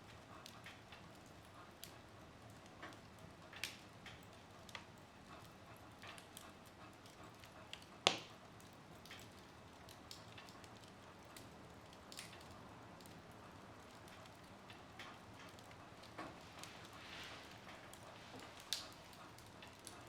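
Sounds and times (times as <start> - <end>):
wood fire crackling: 0.0 - 20.0
hiss of flames: 16.1 - 19.2.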